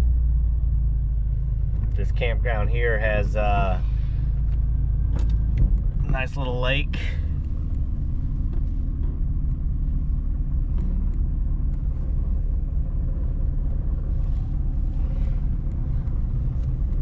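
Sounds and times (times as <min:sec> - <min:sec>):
van engine and road rumble: 0:00.0 - 0:17.0.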